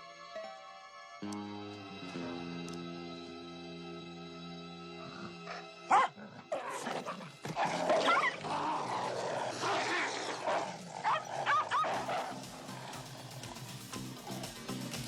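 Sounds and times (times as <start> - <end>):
small dog yelping and barking: 5.9 - 6.8, 9.5 - 12.8.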